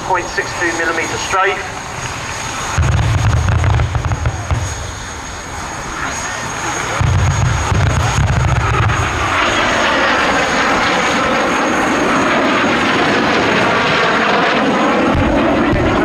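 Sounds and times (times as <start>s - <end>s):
jet engine flying past: 0.0s - 16.0s
deep rumble: 1.8s - 10.8s, 15.0s - 16.0s.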